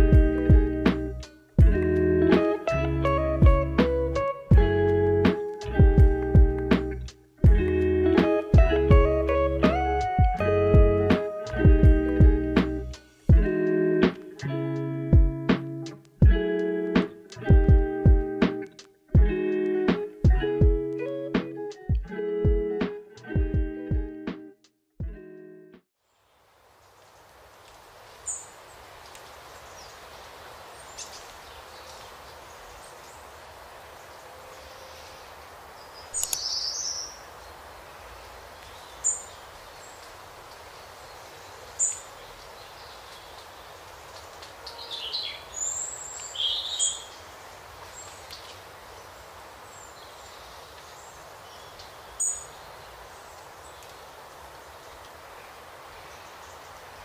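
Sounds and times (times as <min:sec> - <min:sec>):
steady outdoor hiss: 0:00.0 - 0:24.5, 0:26.0 - 0:57.0
birds chirping and whistling: 0:44.7 - 0:47.2.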